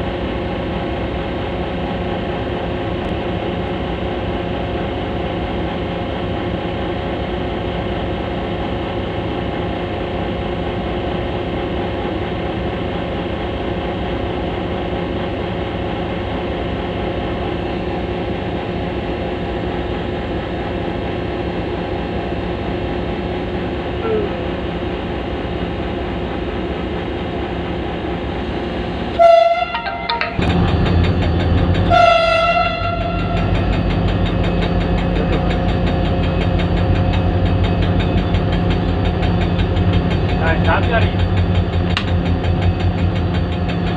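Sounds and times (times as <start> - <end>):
diesel locomotive engine running: 0.0 - 43.9
locomotive horn blasts: 29.2 - 30.1, 31.8 - 33.4.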